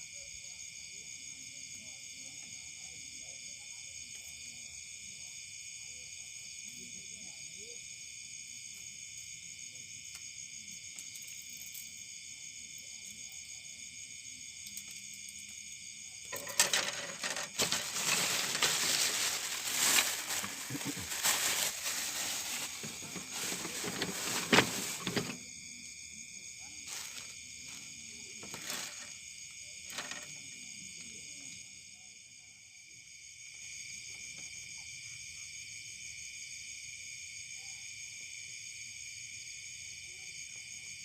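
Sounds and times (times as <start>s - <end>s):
insects shrilling: 16.2s - 25.6s
rustling clicking noise: 16.4s - 25.4s.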